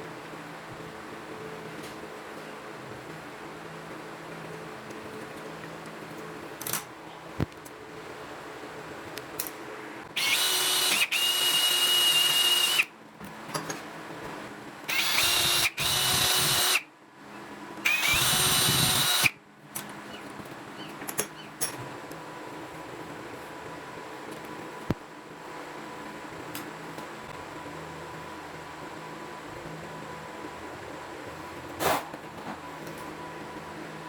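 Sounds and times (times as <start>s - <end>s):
power tool motor whining: 10.2s - 12.9s, 14.9s - 16.8s, 17.8s - 19.3s.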